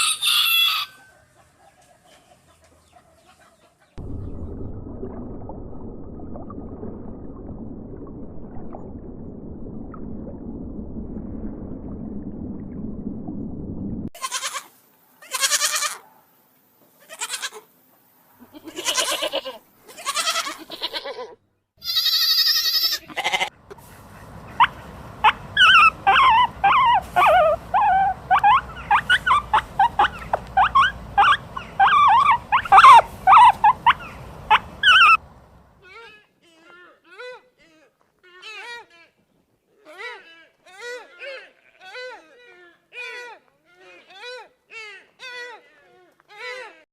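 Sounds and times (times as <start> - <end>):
steady low noise: 4.0 - 14.1
low hum: 4.0 - 14.2
goats bleating: 14.2 - 16.0, 18.4 - 23.5, 40.6 - 42.3.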